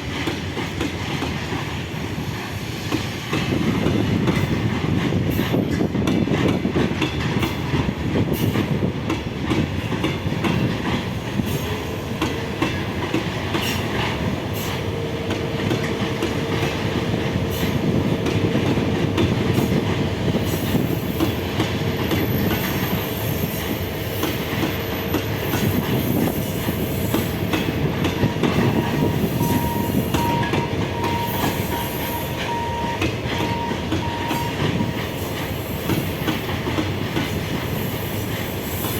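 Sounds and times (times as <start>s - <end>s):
train wheels clattering: 0.0s - 38.9s.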